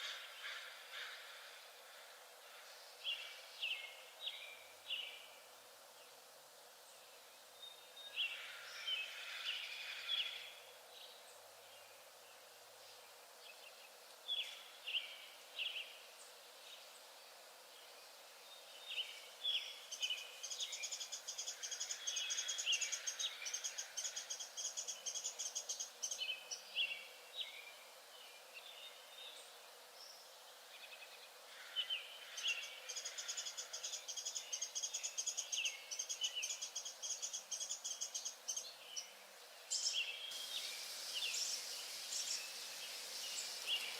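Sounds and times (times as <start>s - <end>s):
bird chirps: 39.7s - 43.9s.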